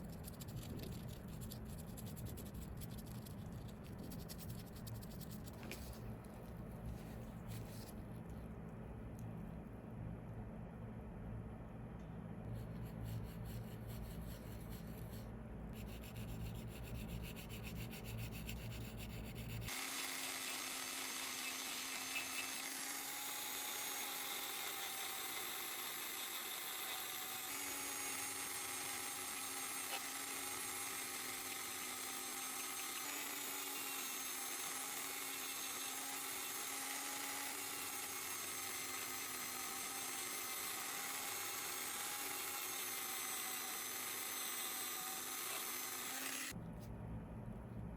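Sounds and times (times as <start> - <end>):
tool grinding small part: 15.8 - 46.6
rotary tool whine: 17.0 - 46.6
low hum: 46.6 - 47.9.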